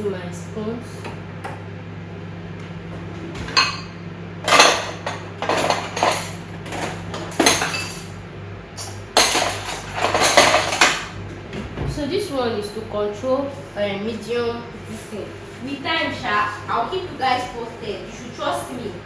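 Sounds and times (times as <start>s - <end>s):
metal spoons clinking on dishes: 4.5s - 8.2s, 8.8s - 11.1s.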